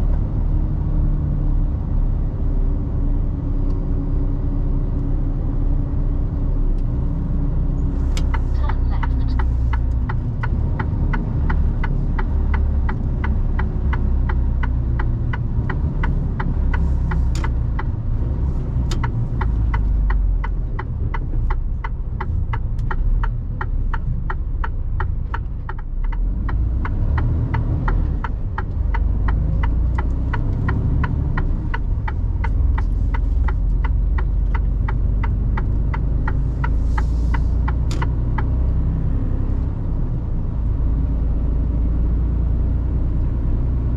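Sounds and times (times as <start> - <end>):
engine and road drone: 0.0 - 43.9
turn signal ticking: 7.7 - 41.2.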